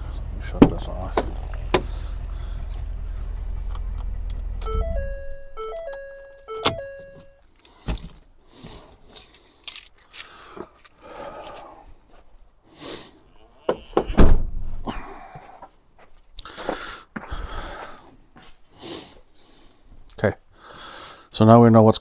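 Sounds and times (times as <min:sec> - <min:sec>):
truck engine idling: 0:00.0 - 0:07.3
jingling: 0:04.2 - 0:08.2
electronic warning chime: 0:04.6 - 0:07.4.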